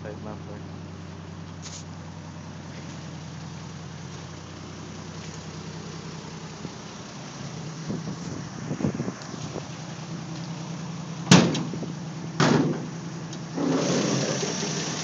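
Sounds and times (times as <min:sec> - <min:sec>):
car engine idling: 0:00.0 - 0:15.0
irregular engine knocks: 0:11.2 - 0:14.2.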